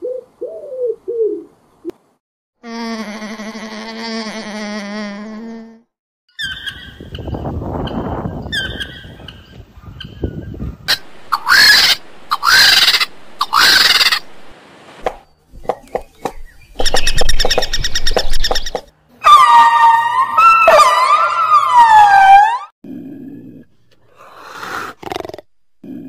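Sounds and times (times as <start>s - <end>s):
loud harsh animal calls: 10.9s - 14.5s, 19.2s - 22.7s
rapid rattling call: 10.9s - 14.5s
wavering gliding siren-like call: 19.2s - 22.7s.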